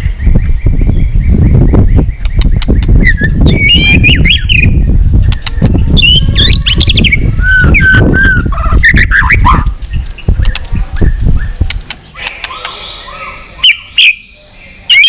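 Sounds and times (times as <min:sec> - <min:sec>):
sharp clicks: 0:02.2 - 0:03.0, 0:05.2 - 0:05.8, 0:11.7 - 0:12.8
bird singing whistled phrases: 0:03.0 - 0:04.8, 0:06.0 - 0:09.6.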